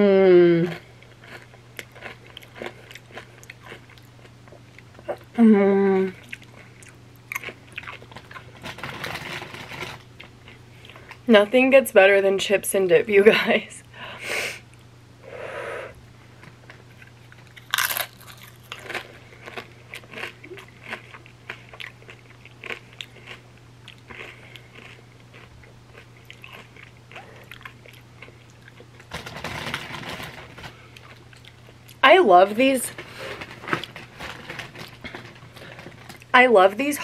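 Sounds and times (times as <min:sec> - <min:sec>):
low electrical hum: 0:00.0 - 0:37.0
crunching and chewing chip: 0:00.7 - 0:05.3, 0:06.2 - 0:11.2, 0:16.6 - 0:32.0, 0:32.9 - 0:36.3.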